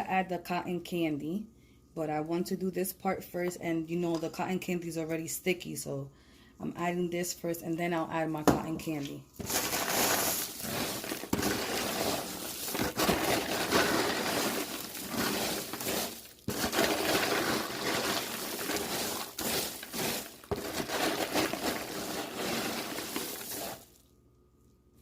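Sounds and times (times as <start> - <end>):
popcorn rattling in a bowl: 9.4 - 24.0.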